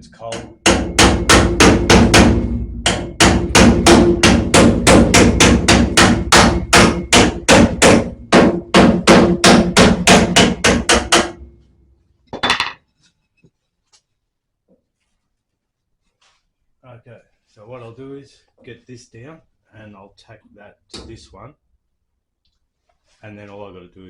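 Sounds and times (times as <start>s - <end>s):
hammer on sheet steel: 0.2s - 11.7s.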